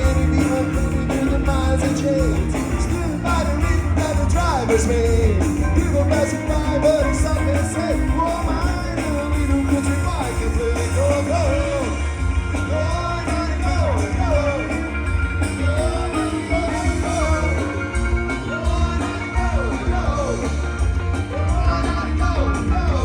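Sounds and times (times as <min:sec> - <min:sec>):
live rock band playing: 0:00.0 - 0:23.0.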